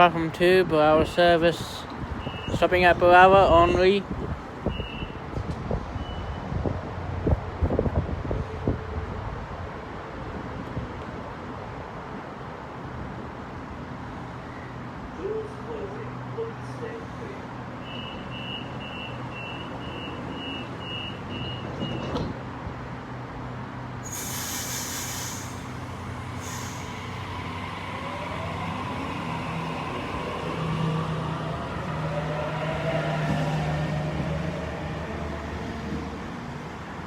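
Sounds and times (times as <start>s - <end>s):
door-closing warning beeps: 2.2s - 2.6s, 4.7s - 5.2s, 17.8s - 22.3s
train doors clunking shut: 17.9s - 22.6s
air brake hiss: 24.0s - 27.2s.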